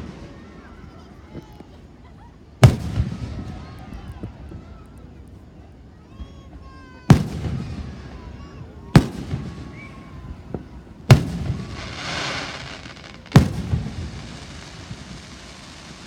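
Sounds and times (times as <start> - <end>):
firework hiss: 2.6 - 3.8, 7.1 - 16.0
firework booms: 2.6 - 4.6, 7.0 - 16.0.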